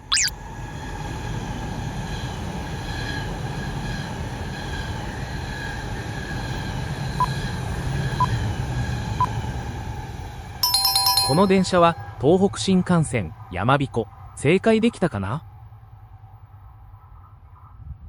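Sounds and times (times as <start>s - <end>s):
short clicks: 0.1s - 0.3s
train rumbling past: 0.4s - 14.4s.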